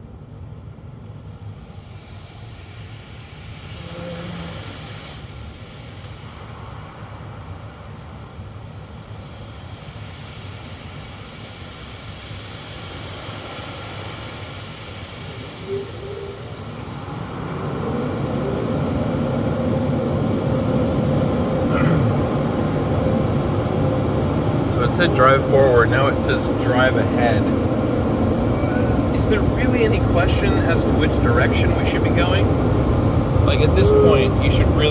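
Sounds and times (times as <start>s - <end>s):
car wash rumble and hiss: 0.0s - 34.9s
steady hum: 14.8s - 34.9s.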